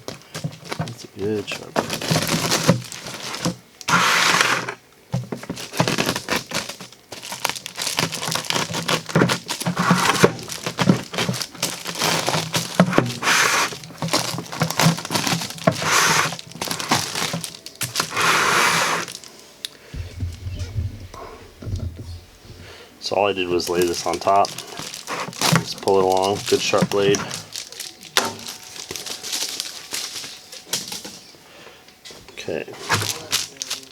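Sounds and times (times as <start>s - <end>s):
insulation sheet crinkling: 0.0s - 31.4s, 32.7s - 33.9s.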